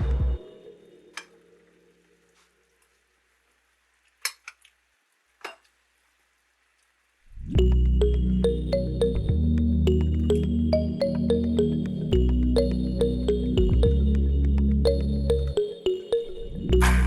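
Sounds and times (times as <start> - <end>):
background music: 0.0 - 2.2, 7.6 - 17.0.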